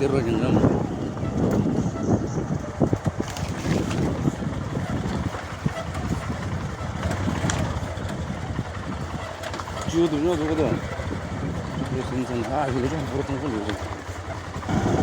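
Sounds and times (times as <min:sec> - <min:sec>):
wind on microphone: 0:00.0 - 0:10.0, 0:10.6 - 0:12.2, 0:14.6 - 0:15.0
motorcycle engine rumble: 0:00.0 - 0:15.0.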